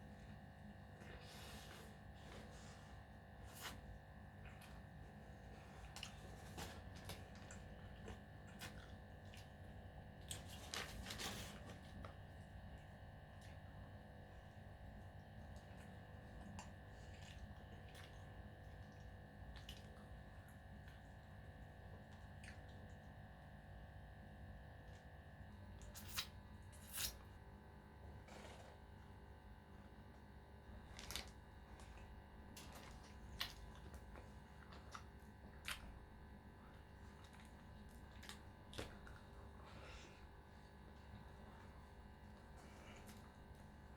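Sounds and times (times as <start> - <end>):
steady low hum: 0.0 - 43.9
person chewing: 31.0 - 35.9.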